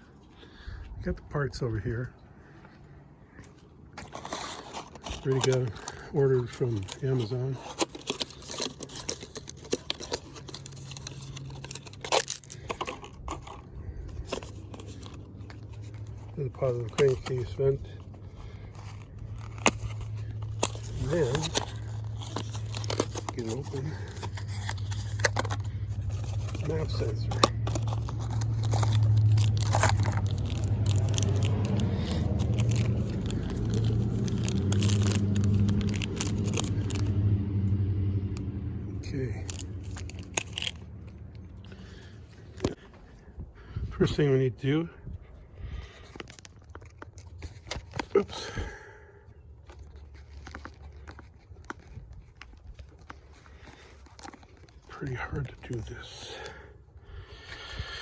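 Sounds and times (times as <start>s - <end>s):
low mechanical hum: 0.0s - 55.0s
handling clicks and scrapes: 2.0s - 43.5s, 44.2s - 56.9s
small parts clicking and knocking: 6.9s - 17.7s.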